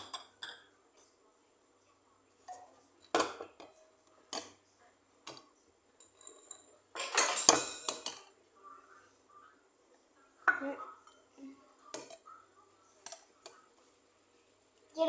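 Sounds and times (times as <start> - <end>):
cutlery and dishes clinking: 0.0 - 1.2, 5.2 - 8.4, 10.5 - 13.8.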